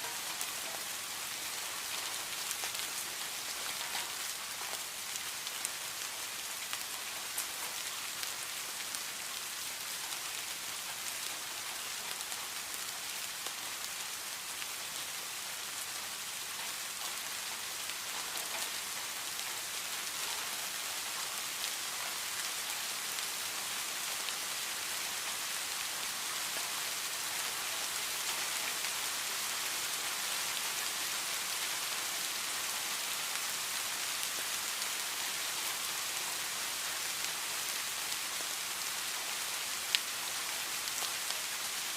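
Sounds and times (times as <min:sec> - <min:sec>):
heavy rain falling: 0:00.0 - 0:41.9.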